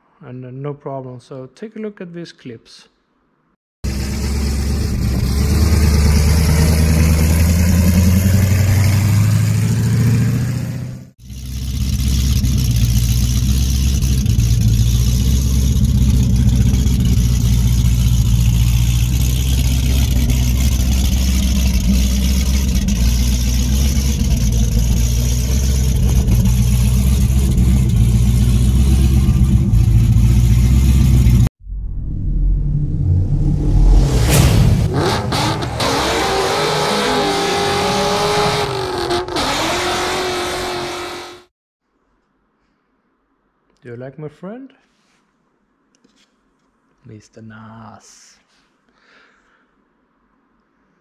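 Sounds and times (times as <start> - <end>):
deep car engine running: 3.8 - 41.2.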